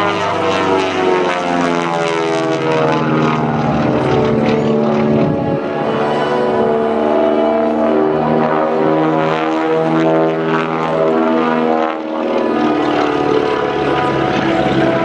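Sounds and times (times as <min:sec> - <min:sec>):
airshow music playing: 0:00.0 - 0:15.0
radial aircraft engines: 0:00.0 - 0:15.0.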